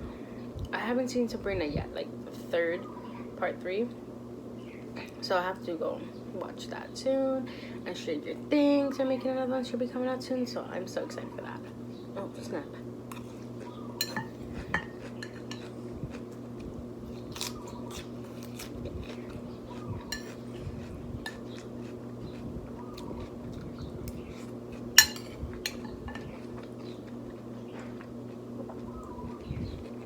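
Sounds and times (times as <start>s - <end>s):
chewing: 13.1s - 30.0s
metal spoon clinking on plate: 14.0s - 15.6s, 25.0s - 26.3s.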